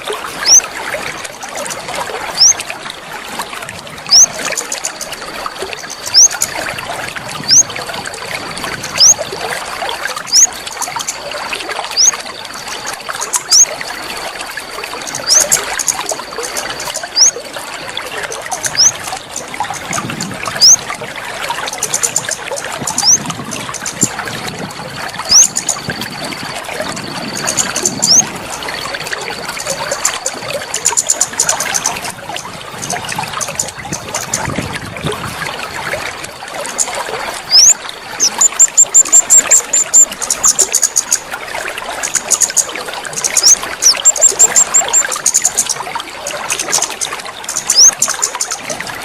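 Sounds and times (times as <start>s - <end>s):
trickling splashing water: 0.0s - 49.0s
songbird calls: 0.3s - 0.7s, 1.8s - 2.7s, 4.1s - 6.7s, 7.4s - 7.8s, 8.8s - 9.3s, 10.1s - 13.8s, 15.0s - 20.9s, 21.6s - 24.3s, 25.2s - 32.1s, 36.7s - 41.3s, 42.0s - 45.8s, 46.5s - 48.6s
sharp high bird chirps: 4.1s - 4.9s, 5.8s - 6.4s, 10.3s - 10.5s, 12.0s - 12.2s, 13.4s - 13.7s, 15.2s - 16.1s, 16.7s - 17.4s, 18.6s - 19.0s, 20.6s - 20.8s, 23.0s - 23.2s, 25.3s - 25.8s, 27.6s - 28.3s, 43.2s - 45.7s.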